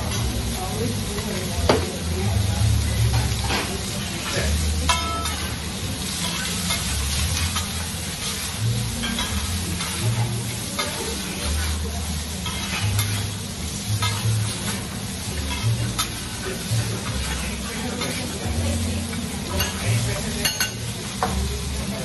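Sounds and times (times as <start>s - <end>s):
food sizzling on a hotplate: 0.0s - 22.0s
metal spatulas stirring: 4.2s - 21.3s.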